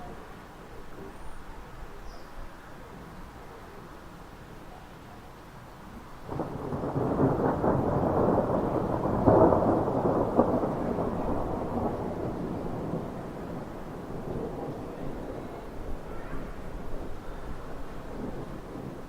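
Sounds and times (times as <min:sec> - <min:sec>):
thunder crackling and rumbling: 0:06.2 - 0:19.0.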